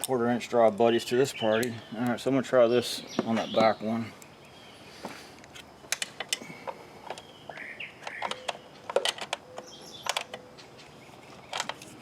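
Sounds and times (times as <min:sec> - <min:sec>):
faint bird chirping: 0:00.9 - 0:05.4, 0:06.4 - 0:12.0
socket tools clicking on metal: 0:05.9 - 0:10.5.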